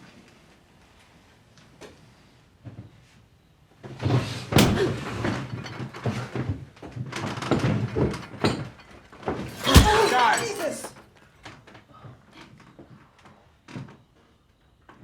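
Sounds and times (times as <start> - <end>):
heavy thumps and knocks: 4.6 - 5.1
rustling movement: 9.5 - 10.9.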